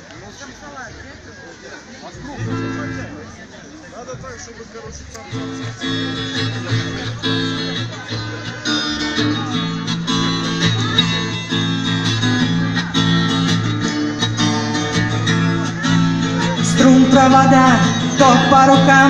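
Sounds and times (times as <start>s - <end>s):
acoustic guitar strumming: 2.4s - 3.2s, 5.2s - 19.0s.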